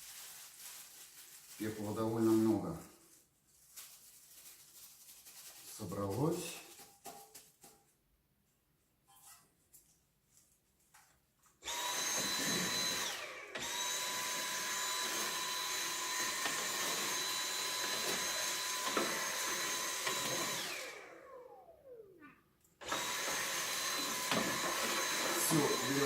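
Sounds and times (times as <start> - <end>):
vacuum cleaner motor whine: 11.6 - 22.2, 22.8 - 26.0.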